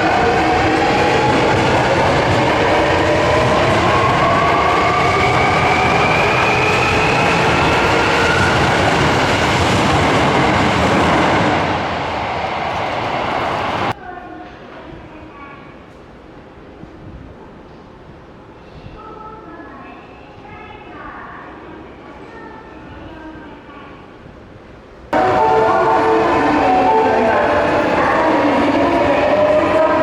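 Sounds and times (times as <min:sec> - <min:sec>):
platform noise: 0:25.2 - 0:30.0.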